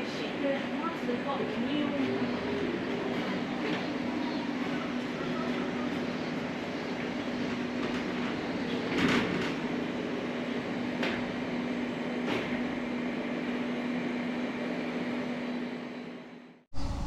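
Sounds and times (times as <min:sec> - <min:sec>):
machine hum: 0:16.7 - 0:17.0.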